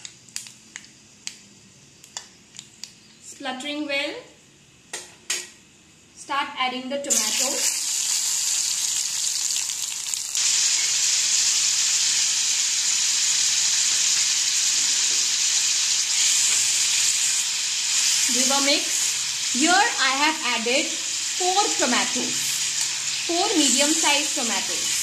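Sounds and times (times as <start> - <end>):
tomatoes sizzling in oil: 7.1 - 25.0.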